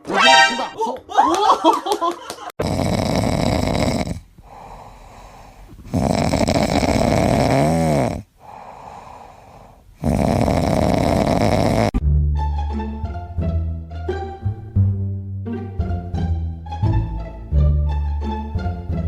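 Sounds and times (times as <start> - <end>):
pet snoring loudly: 2.6 - 5.2, 5.8 - 12.0.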